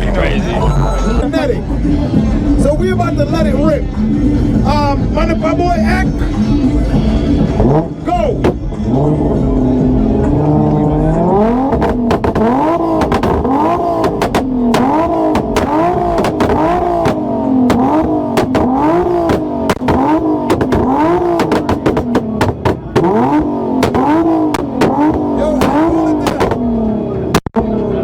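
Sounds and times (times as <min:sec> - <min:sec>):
car engine bouncing off rev limiter: 0:07.4 - 0:09.4, 0:10.3 - 0:27.9
exhaust pops and cracks: 0:11.7 - 0:26.6, 0:27.3 - 0:27.6.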